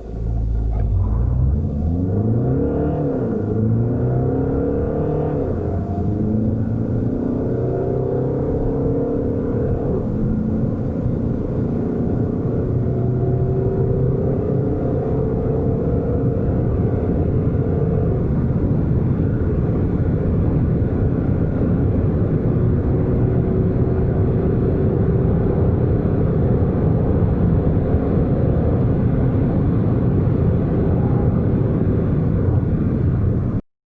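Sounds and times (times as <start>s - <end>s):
diesel car engine pulling: 0.0s - 33.6s
road noise: 0.0s - 33.6s.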